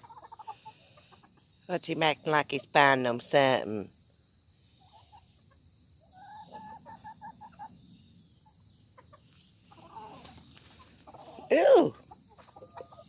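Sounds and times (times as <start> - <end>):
rooster clucking: 0.0 - 1.3.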